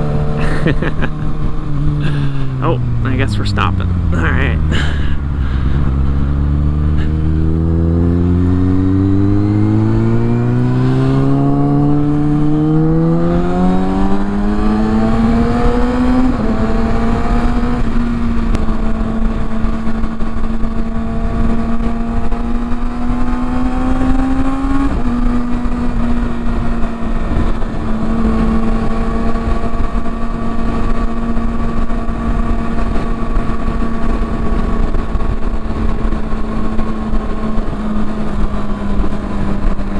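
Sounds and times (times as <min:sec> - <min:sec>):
motorcycle engine revving: 0:04.9 - 0:17.8.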